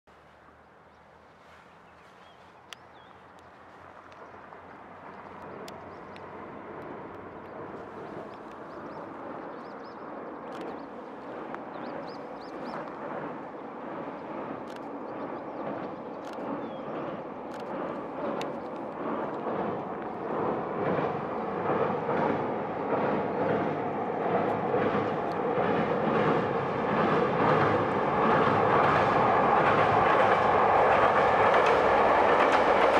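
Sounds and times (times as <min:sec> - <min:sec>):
diesel train rumble on bridge: 0:00.1 - 0:32.9
birds chirping: 0:00.6 - 0:06.4, 0:07.4 - 0:17.2.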